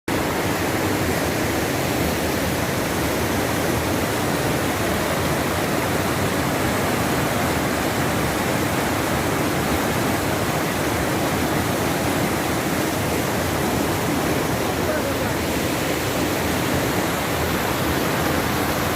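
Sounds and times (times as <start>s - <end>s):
waterfall: 0.1s - 18.9s.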